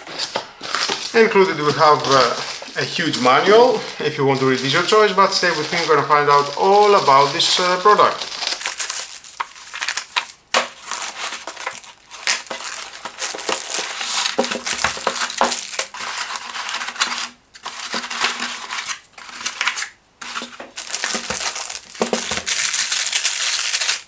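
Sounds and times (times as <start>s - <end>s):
items clicking and knocking: 0.0s - 16.0s, 20.2s - 23.3s
plastic packaging crinkling: 0.0s - 24.0s.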